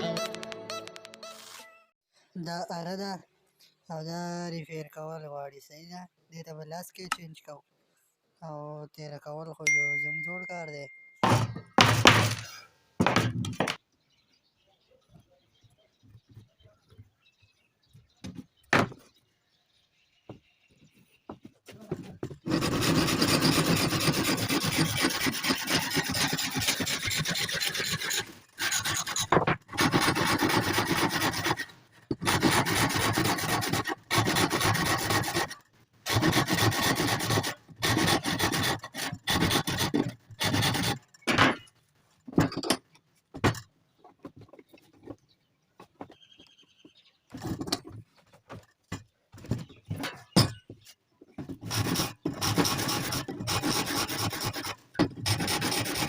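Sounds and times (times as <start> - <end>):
file rasping on saw teeth: 22.5 - 41.0, 51.6 - 56.0.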